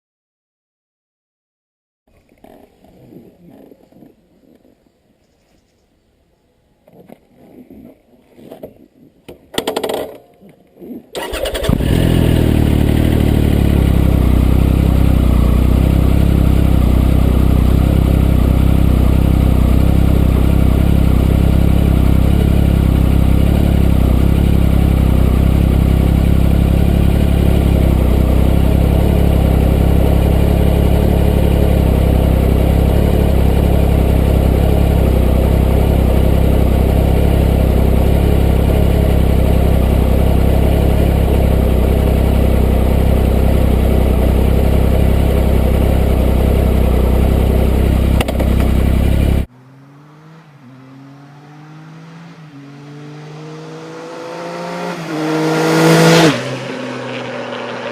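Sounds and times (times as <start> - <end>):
motorcycle engine starting and idling: 9.5 - 10.3, 11.1 - 49.5, 52.7 - 57.9.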